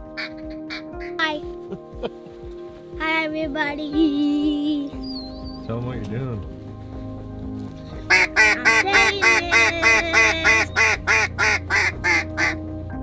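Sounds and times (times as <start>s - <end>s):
duck quacking: 8.1s - 12.6s.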